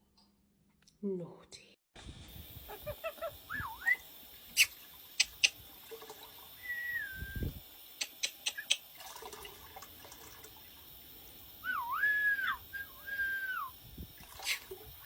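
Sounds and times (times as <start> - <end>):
bird whistling swooping notes: 3.5 - 4.0, 6.6 - 7.5, 11.6 - 13.7
sharp clicks: 4.6 - 5.6, 8.0 - 8.8.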